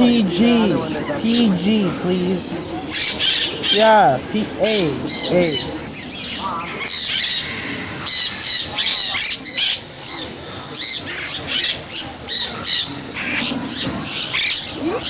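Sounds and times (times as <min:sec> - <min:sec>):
parrots squawking: 0:02.8 - 0:04.0, 0:04.6 - 0:15.0.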